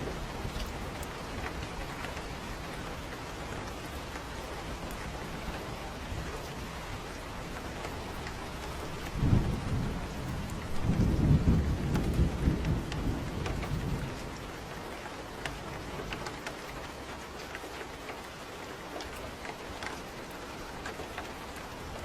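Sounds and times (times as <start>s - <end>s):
steady rain: 0.0s - 22.0s
thunder rumble: 4.6s - 17.2s.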